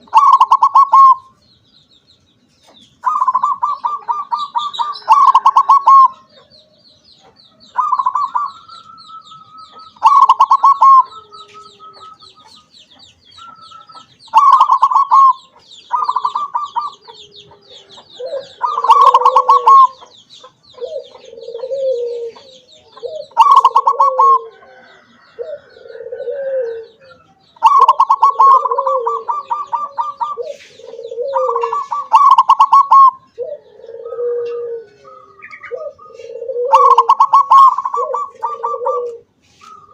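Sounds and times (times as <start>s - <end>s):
dove stuttering coos: 0.0s - 1.3s, 3.0s - 6.5s, 7.7s - 8.8s, 9.6s - 12.6s, 13.9s - 20.1s, 20.7s - 39.9s
lower-pitched coos: 7.7s - 12.7s, 16.0s - 20.0s, 20.8s - 39.9s.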